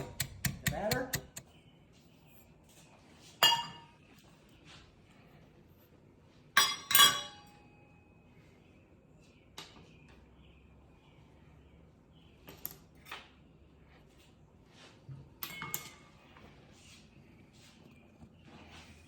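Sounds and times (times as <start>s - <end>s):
utensil clinking against glass dish: 3.4s - 3.9s, 6.6s - 7.5s.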